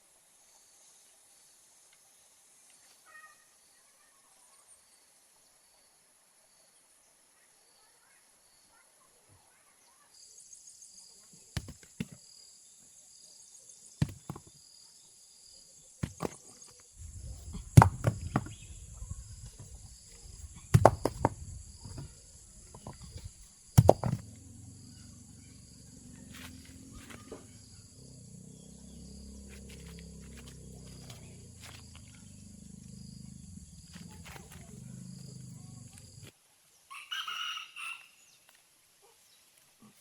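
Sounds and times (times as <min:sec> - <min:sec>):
insects chirping: 0:09.8 - 0:40.0
sharp knocks: 0:17.0 - 0:24.3.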